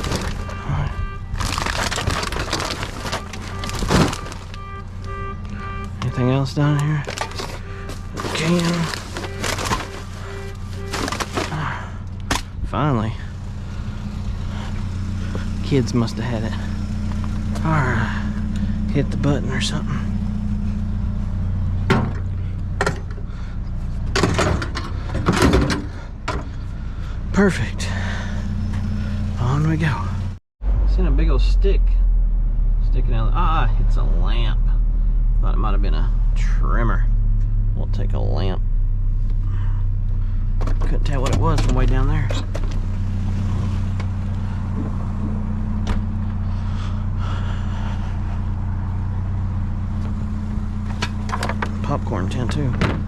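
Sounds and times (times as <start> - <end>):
vehicle engine idling: 0.0 - 53.0.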